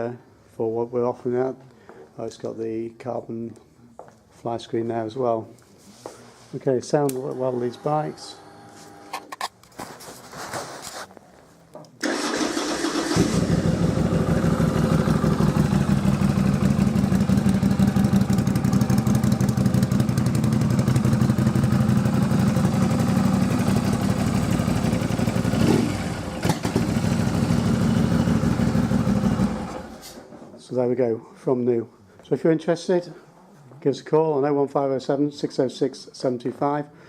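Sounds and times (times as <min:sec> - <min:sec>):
motorcycle engine starting: 0:12.0 - 0:30.4
motorcycle engine idling: 0:13.0 - 0:29.9.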